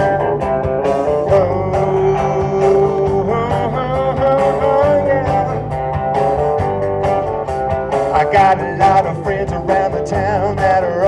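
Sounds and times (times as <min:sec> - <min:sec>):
bass guitar: 0:00.0 - 0:11.0
electric guitar lines: 0:00.0 - 0:11.0
steady drum beat: 0:00.0 - 0:11.0.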